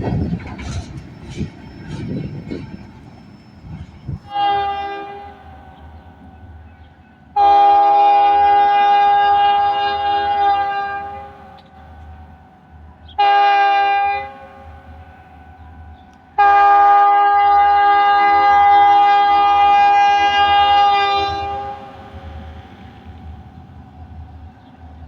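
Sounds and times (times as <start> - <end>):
low rumble of train: 0.0 - 25.0
locomotive air horn blasts: 4.2 - 5.8, 7.4 - 11.7, 13.2 - 14.8, 16.4 - 22.4.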